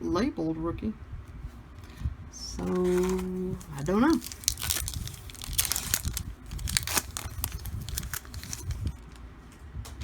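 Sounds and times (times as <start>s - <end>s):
foil wrapper tearing and crinkling: 2.6s - 9.2s.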